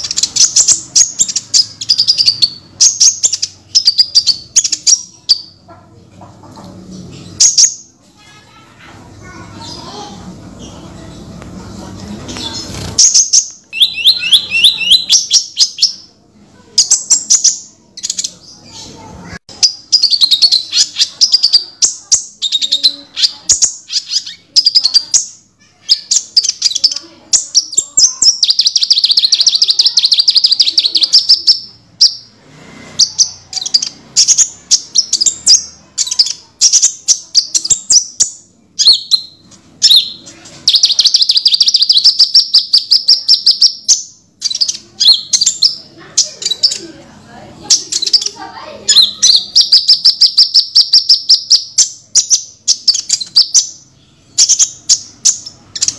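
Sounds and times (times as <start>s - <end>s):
bird singing high trills: 12.8s - 16.1s.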